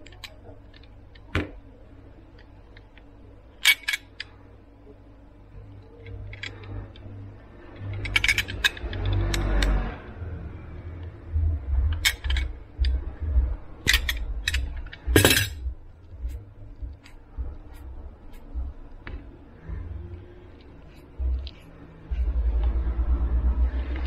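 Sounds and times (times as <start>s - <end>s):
small hard parts clicking: 5.8s - 10.0s, 11.8s - 13.1s, 13.8s - 15.7s
low bumps: 9.7s - 24.0s.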